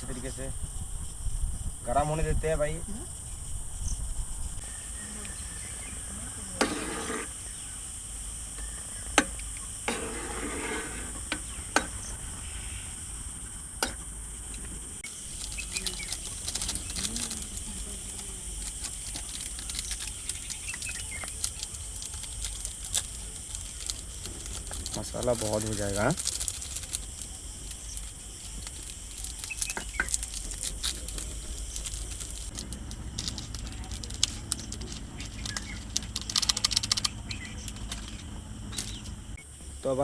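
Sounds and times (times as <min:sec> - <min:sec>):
crickets chirring: 0:00.0 - 0:40.0
dense crackling patter: 0:14.4 - 0:39.4.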